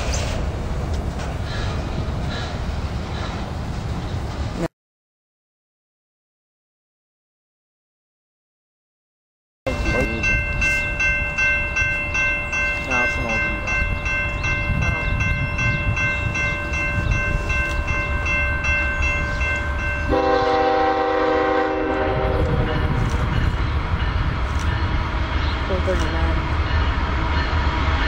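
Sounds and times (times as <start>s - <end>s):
freight train rumbling past: 0.0s - 4.7s, 9.7s - 28.0s
bell ringing: 9.7s - 20.4s
locomotive air horn: 20.1s - 23.0s.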